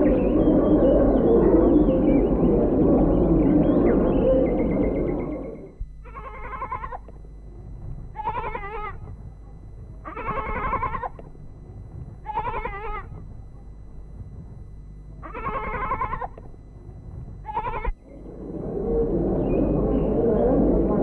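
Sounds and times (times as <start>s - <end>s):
steady low hum: 0.0s - 21.0s
livestock bleating: 6.0s - 7.1s, 8.1s - 9.1s, 10.0s - 11.3s, 12.2s - 13.2s, 15.2s - 16.5s, 17.4s - 18.0s.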